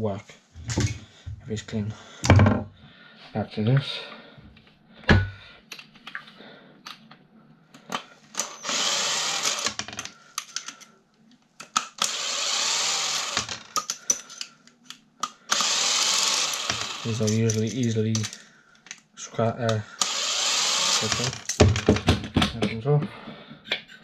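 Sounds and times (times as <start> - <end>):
parts clicking and knocking: 7.8 - 10.9, 11.6 - 23.1
cordless drill running: 8.4 - 9.9, 12.0 - 13.7, 15.5 - 17.4, 20.0 - 21.6.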